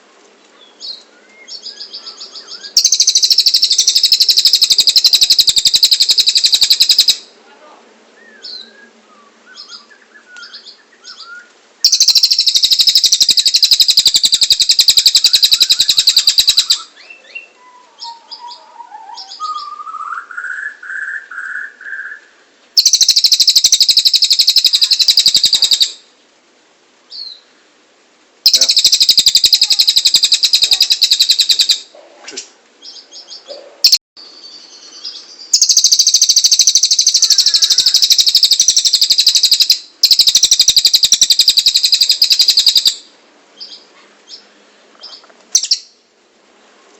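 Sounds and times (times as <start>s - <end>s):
bird chirps: 0.6s - 7.3s, 8.2s - 26.0s, 28.4s - 32.0s, 32.8s - 46.0s
bird trilling: 0.8s - 7.3s, 9.5s - 22.2s, 22.8s - 26.0s, 28.4s - 32.0s, 34.6s - 44.4s, 45.0s - 46.0s
bird whistled phrase: 8.2s - 22.2s, 28.5s - 31.8s, 35.6s - 42.9s.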